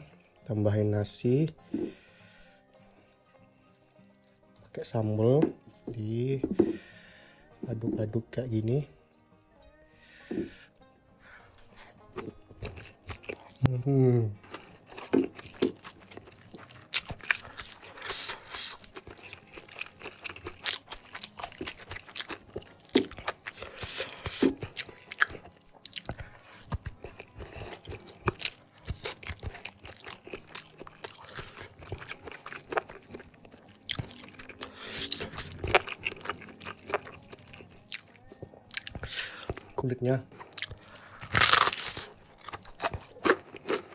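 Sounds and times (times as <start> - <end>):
crunchy chewing: 11.3 - 13.8, 14.4 - 39.8, 40.4 - 43.9.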